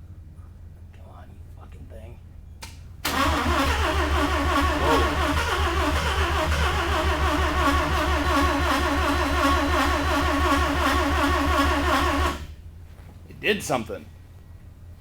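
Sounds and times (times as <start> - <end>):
starter motor cranking engine: 3.0 - 12.6.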